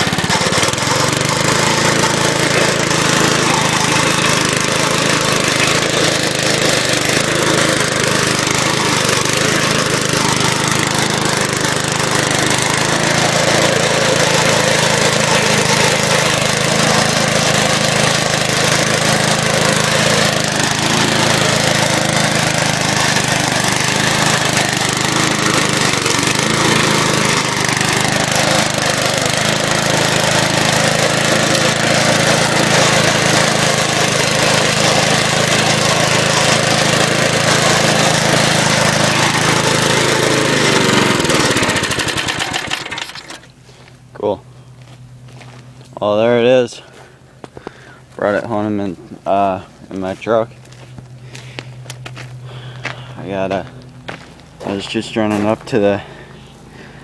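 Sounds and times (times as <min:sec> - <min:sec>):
mower blade rushing: 0:00.0 - 0:43.7
lawn mower engine running: 0:00.0 - 0:57.0.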